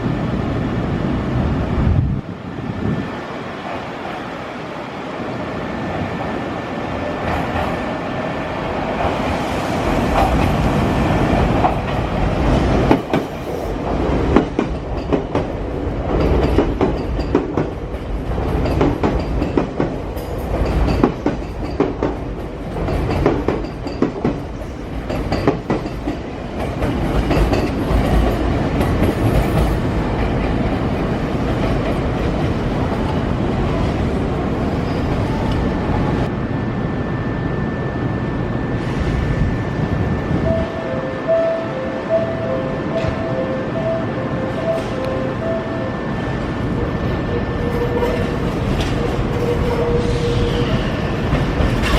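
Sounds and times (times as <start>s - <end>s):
electric train passing: 0.0s - 51.9s
wheels clacking over rail joints: 10.0s - 33.1s.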